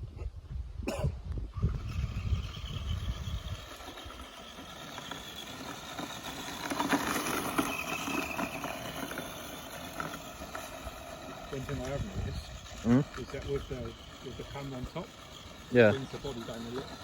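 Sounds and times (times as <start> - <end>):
wind rumble on microphone: 0.0 - 4.3, 11.5 - 14.6
tyres running over ground: 1.5 - 17.0
electric motor whining: 1.6 - 17.0.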